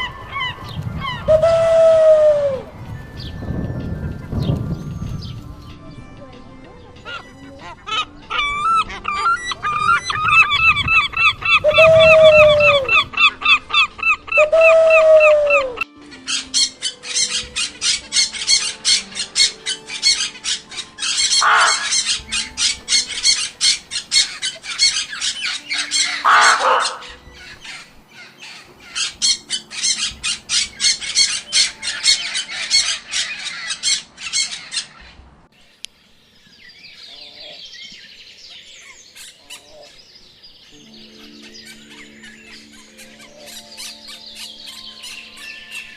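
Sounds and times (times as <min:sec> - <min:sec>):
falling squawks: 0:07.8 - 0:35.2
goose honking: 0:17.3 - 0:27.2.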